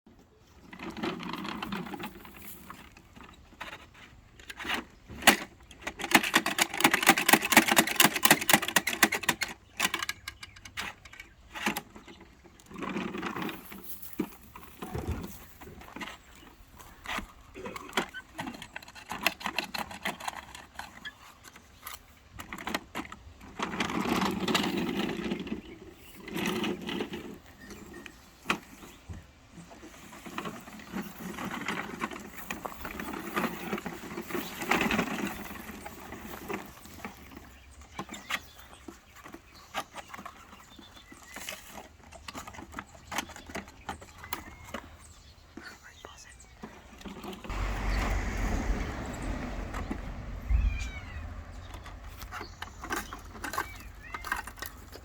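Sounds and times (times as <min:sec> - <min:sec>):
garbage truck rattling: 0:47.5 - 0:55.0.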